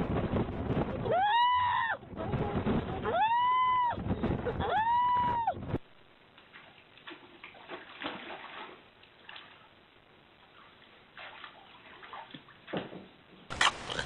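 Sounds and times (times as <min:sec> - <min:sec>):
water splashing and sloshing: 0:06.2 - 0:14.0.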